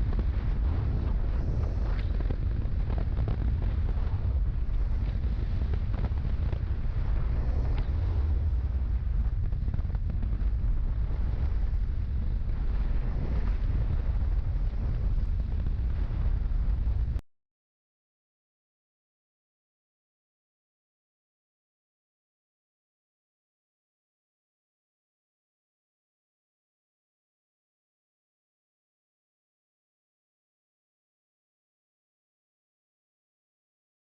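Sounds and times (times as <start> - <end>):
wind buffeting a microphone: 0.0 - 17.2.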